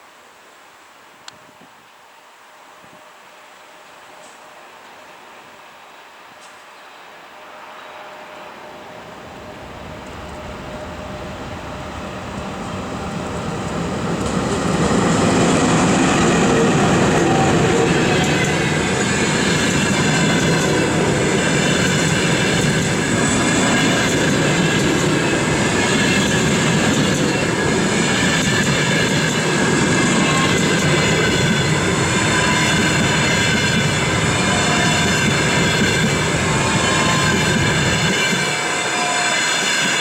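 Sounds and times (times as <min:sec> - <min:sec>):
train wheels rumbling on rails: 0:08.8 - 0:40.0.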